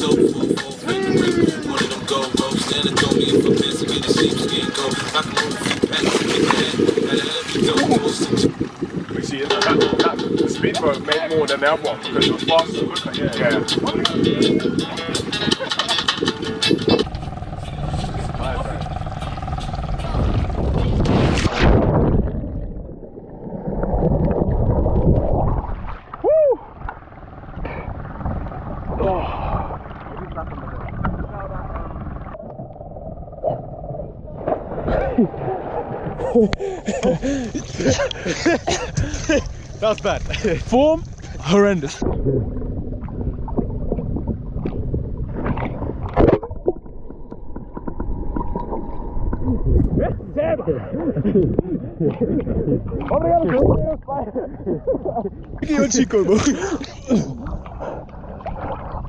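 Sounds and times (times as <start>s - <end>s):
water rushing past boat: 0.0s - 32.5s
wind on microphone: 0.0s - 59.0s.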